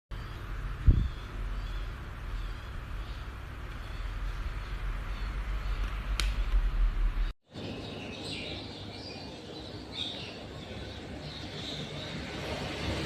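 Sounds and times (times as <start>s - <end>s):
small birds chirping: 0.1s - 13.0s.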